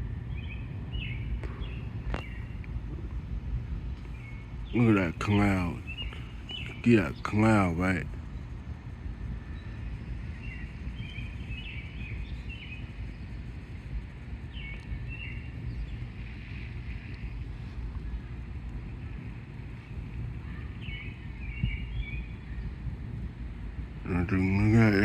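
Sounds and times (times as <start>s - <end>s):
birds chirping: 0.0s - 25.0s
wind buffeting microphone: 0.0s - 25.0s.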